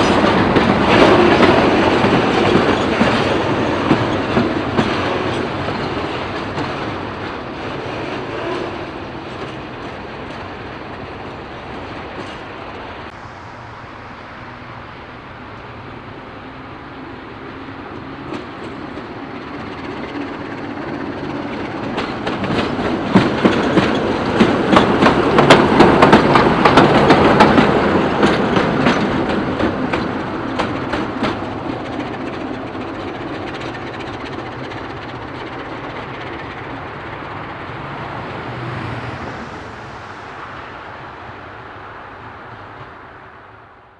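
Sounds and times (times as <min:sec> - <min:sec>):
train wheels clacking on rails: 0:00.0 - 0:13.1, 0:17.4 - 0:38.5.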